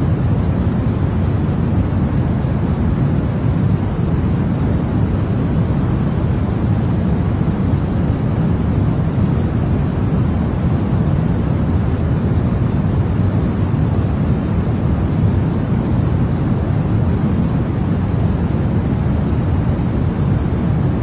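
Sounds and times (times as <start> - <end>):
low white noise: 0.0 - 21.0.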